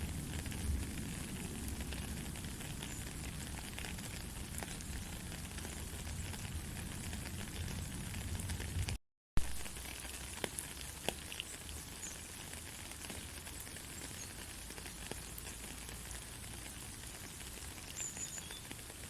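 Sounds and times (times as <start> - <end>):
gentle rain falling: 0.0 - 19.0
sharp drip ticks: 9.7 - 19.0
faint high chirp: 17.9 - 18.7.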